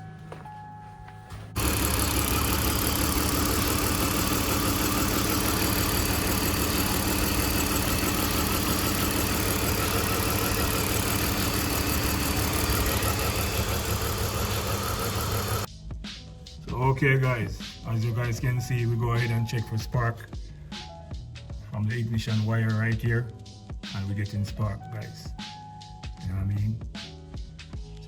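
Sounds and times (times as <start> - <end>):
car engine idling with misfire: 1.6 - 15.7.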